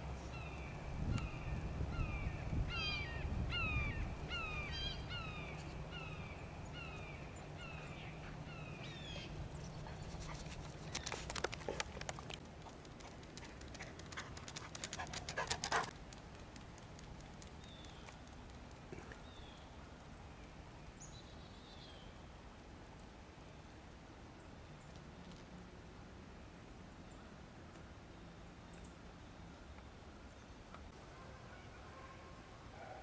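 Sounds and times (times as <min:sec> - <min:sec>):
bird calling: 0:00.4 - 0:11.5.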